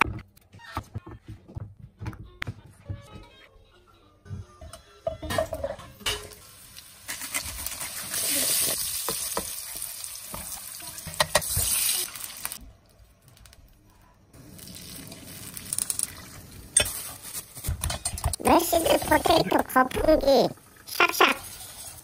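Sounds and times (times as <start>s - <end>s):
carrots sizzling in oil: 6.2s - 12.6s, 20.5s - 22.0s.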